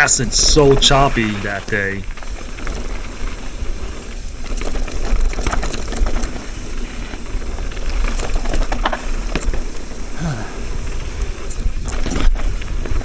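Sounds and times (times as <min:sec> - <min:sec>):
bike tyres rattling over rocks: 0:00.0 - 0:13.0
wind rumble on microphone: 0:00.0 - 0:13.0
bike clicks and knocks: 0:02.1 - 0:10.1, 0:10.7 - 0:13.0.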